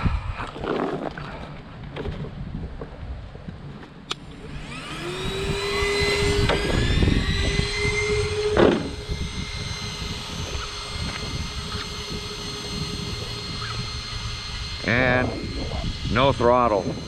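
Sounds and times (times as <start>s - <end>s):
electric motor whine: 4.0s - 17.0s.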